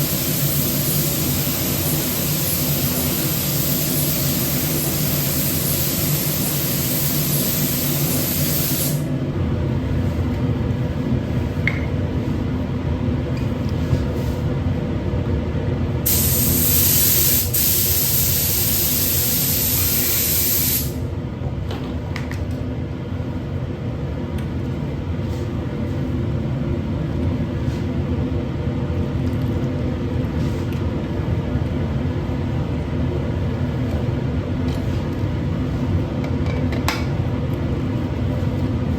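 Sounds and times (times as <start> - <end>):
paint spray gun hissing: 0.0 - 9.1, 16.1 - 21.0
low machine hum: 0.0 - 17.2.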